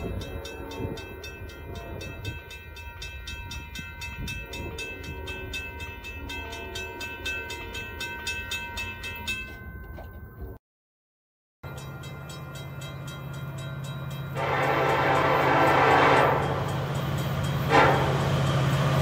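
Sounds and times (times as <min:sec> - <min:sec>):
train passing rumble: 0:00.0 - 0:10.5, 0:11.7 - 0:19.0.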